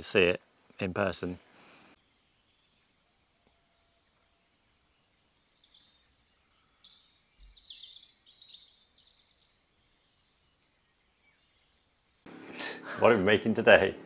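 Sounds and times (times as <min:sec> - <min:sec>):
faint hiss: 0:00.0 - 0:07.6
songbird chirping and trilling: 0:00.2 - 0:12.3.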